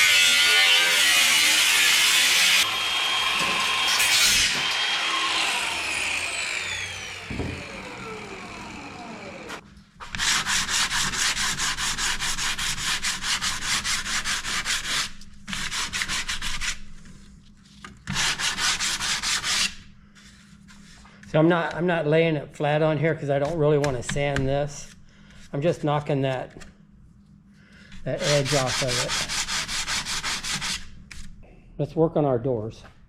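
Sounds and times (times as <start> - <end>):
power saw motor winding down: 2.6 - 9.6
hand sanding wood: 5.4 - 16.9, 18.1 - 20.8, 28.0 - 30.9.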